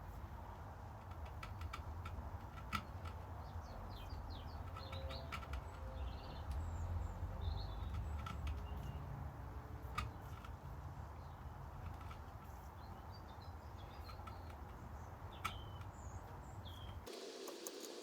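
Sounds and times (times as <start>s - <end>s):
birds chirping faintly: 2.8s - 9.2s, 10.0s - 18.0s
sharp clicks: 17.1s - 18.0s.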